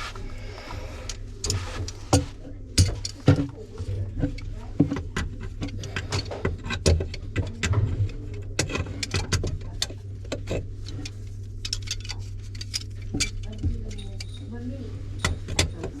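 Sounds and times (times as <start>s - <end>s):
steady low hum: 0.0s - 16.0s
small tools clicking and clinking: 8.3s - 16.0s.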